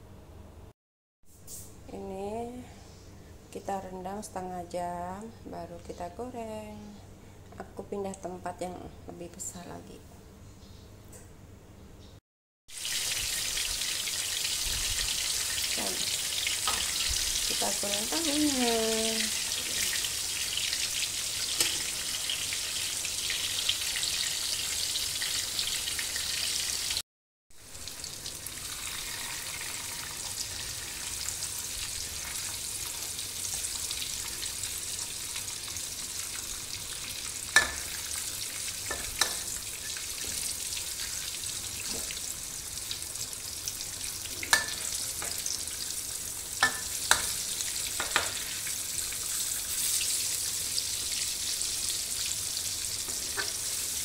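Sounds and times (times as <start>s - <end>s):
tofu sizzling in hot oil: 12.7s - 27.0s, 27.6s - 54.0s.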